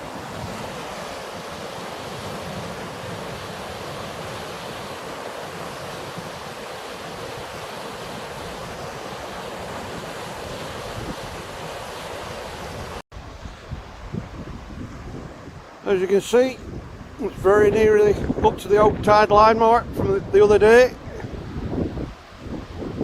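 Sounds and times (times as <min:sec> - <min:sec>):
river rushing: 0:00.0 - 0:17.3
wind on microphone: 0:00.0 - 0:23.0.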